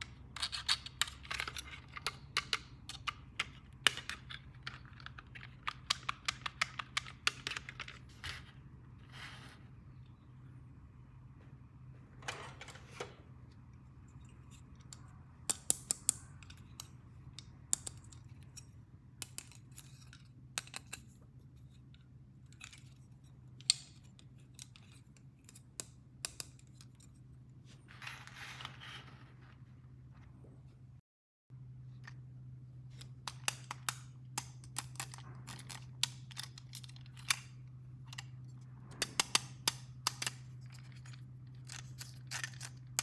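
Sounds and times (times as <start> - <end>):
steady low hum: 0.0 - 43.0
plastic toy pieces clicking: 0.4 - 8.0, 33.0 - 37.5, 39.0 - 43.0.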